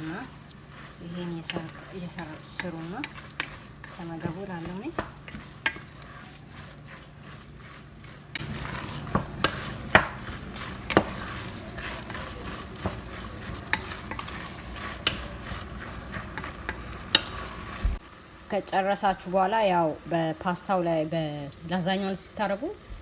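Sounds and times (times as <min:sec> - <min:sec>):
meat sizzling in a frying pan: 0:00.0 - 0:22.7
utensil knocking against pan: 0:08.4 - 0:17.4.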